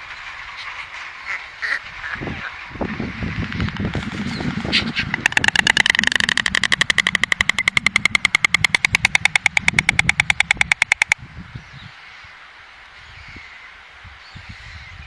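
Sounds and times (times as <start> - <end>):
stork clattering its bill: 5.3 - 11.2.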